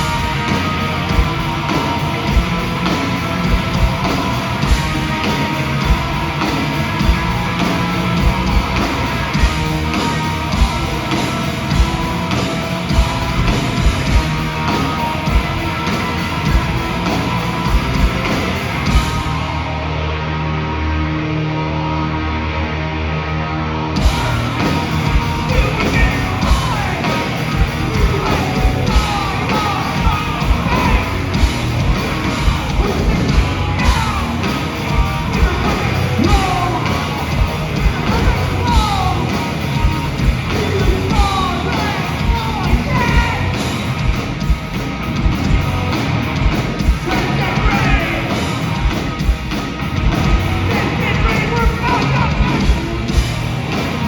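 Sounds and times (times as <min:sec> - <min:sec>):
drums beating: 0:00.0 - 0:19.6, 0:24.0 - 0:54.0
bass guitar: 0:00.0 - 0:54.0
distorted guitars: 0:00.0 - 0:54.0
shouted vocals: 0:24.0 - 0:44.0, 0:46.8 - 0:48.7, 0:50.4 - 0:53.2.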